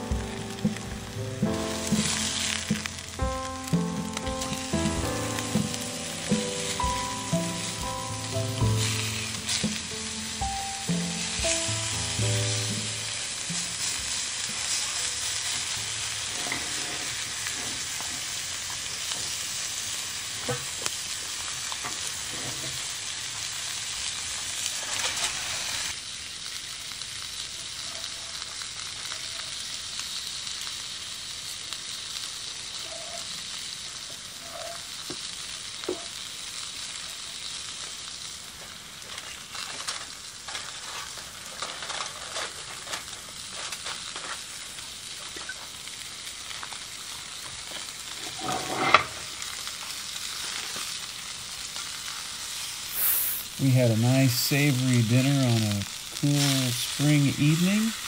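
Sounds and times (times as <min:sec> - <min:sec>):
food sizzling in pans: 0:00.0 - 0:58.0
metal utensil scraping a pan: 0:16.2 - 0:18.3, 0:48.1 - 0:49.4.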